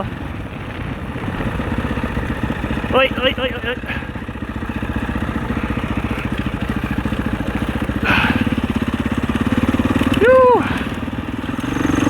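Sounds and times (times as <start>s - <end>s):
motorbike engine running: 0.0s - 12.0s.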